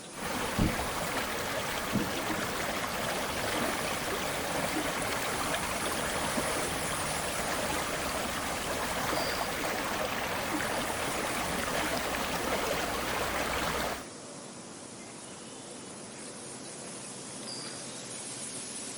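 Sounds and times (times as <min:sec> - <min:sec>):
river water rushing: 0:00.0 - 0:14.1.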